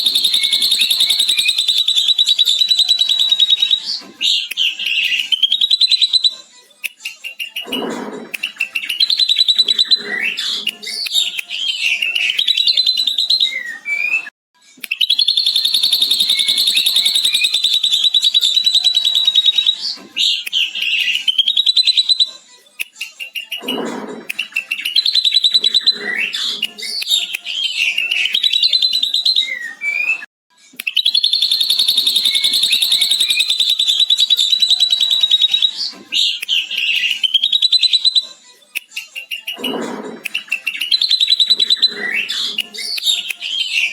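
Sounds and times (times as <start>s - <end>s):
bird's fast chattering trill: 0.0s - 2.5s
bird whistled notes: 0.0s - 6.4s, 14.9s - 22.4s, 30.9s - 38.3s, 39.2s - 43.9s.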